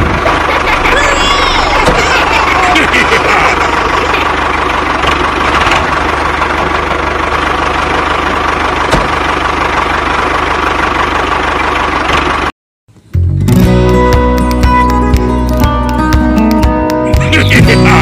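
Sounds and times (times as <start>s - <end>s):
small tractor motor running: 0.0s - 12.5s.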